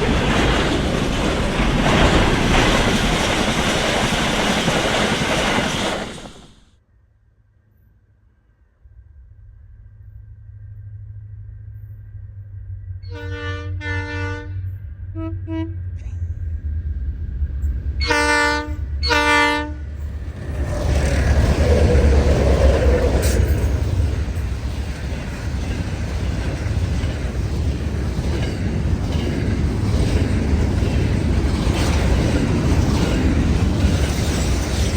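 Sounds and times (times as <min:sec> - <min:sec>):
train rumbling past: 0:00.0 - 0:06.7, 0:08.8 - 0:34.9
diesel locomotive horn: 0:13.0 - 0:16.4, 0:18.0 - 0:20.0.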